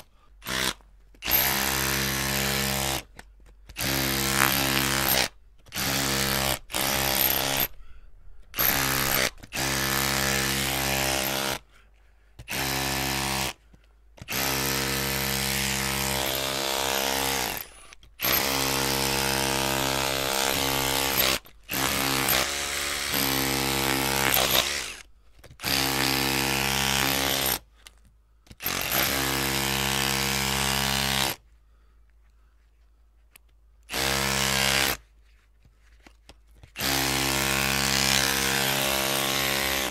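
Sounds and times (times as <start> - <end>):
electric drill motor: 0.4 - 3.0, 3.8 - 7.7, 8.6 - 11.6, 14.3 - 27.6, 36.8 - 39.9.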